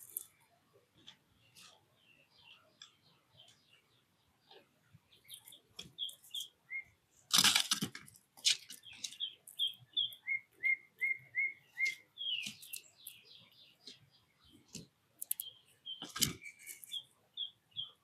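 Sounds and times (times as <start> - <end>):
songbirds chirping: 0.0 - 18.0
repeated whistled bird notes: 5.3 - 7.0, 8.8 - 13.5.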